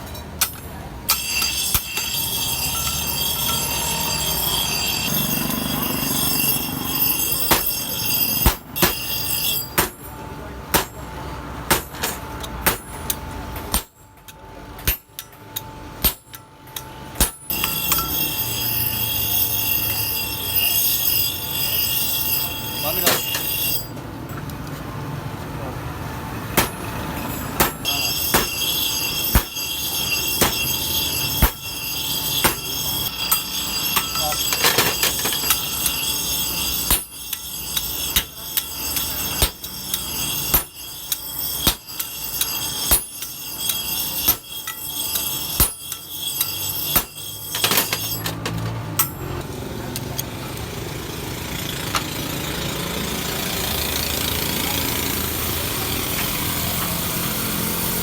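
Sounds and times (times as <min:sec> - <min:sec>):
hammer striking metal on anvil: 0:00.0 - 0:11.0, 0:11.7 - 0:24.0, 0:26.6 - 0:49.4
high metallic ring: 0:01.1 - 0:10.3, 0:14.8 - 0:24.4, 0:26.6 - 0:49.4.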